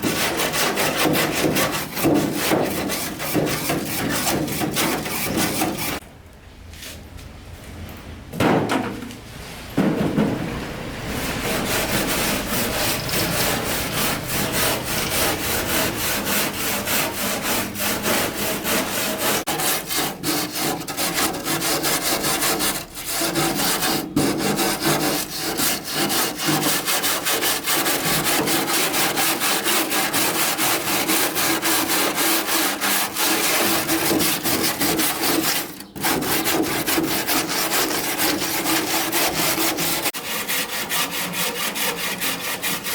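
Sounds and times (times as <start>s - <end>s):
tool scraping a part: 0.0s - 6.0s, 11.4s - 42.9s
loud knocks: 8.3s - 9.0s, 9.8s - 10.8s.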